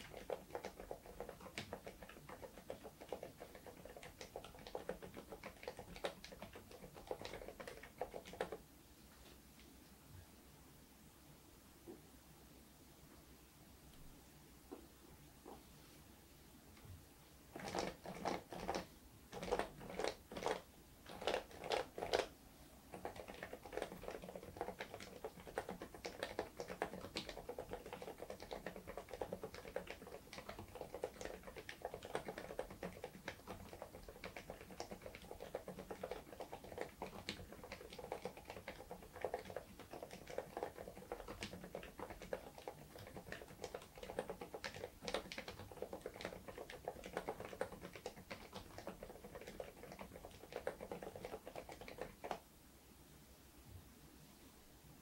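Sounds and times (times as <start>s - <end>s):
mechanical keyboard typing: 0.0s - 8.6s, 17.5s - 22.3s, 22.9s - 52.4s.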